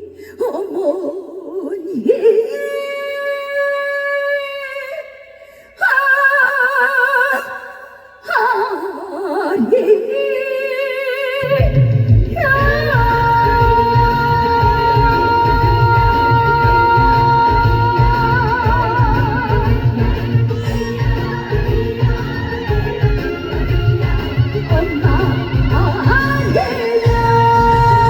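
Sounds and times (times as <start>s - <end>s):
woman singing with vibrato: 0.0s - 28.0s
backing music: 11.4s - 28.0s
heavy drums and bass: 11.6s - 28.0s
sustained high tone: 20.5s - 28.0s.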